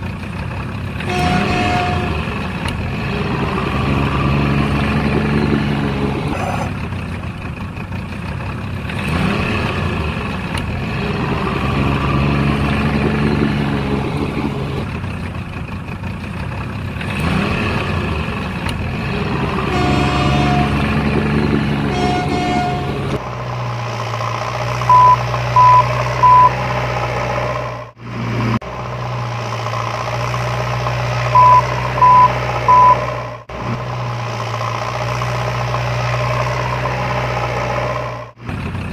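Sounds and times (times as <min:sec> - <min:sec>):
truck engine running: 0:00.0 - 0:38.9
truck horn toots: 0:01.0 - 0:02.6, 0:19.4 - 0:23.2, 0:24.9 - 0:26.6, 0:31.3 - 0:33.1
short reversing beeps: 0:24.9 - 0:26.6, 0:31.4 - 0:33.1.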